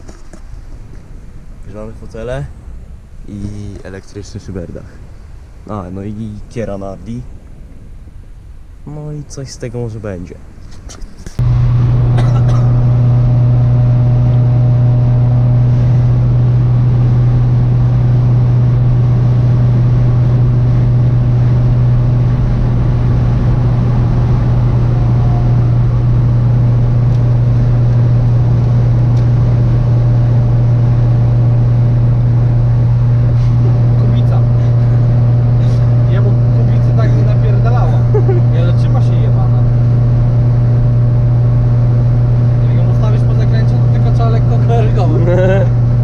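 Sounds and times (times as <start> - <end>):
road and wind noise: 0.0 - 46.0
car engine droning: 11.3 - 46.0.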